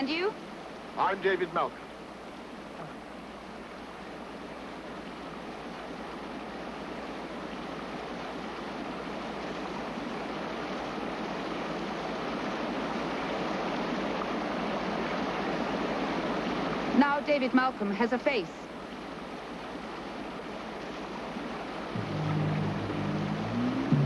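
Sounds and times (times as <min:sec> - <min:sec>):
sea surf rushing: 0:21.2 - 0:24.0.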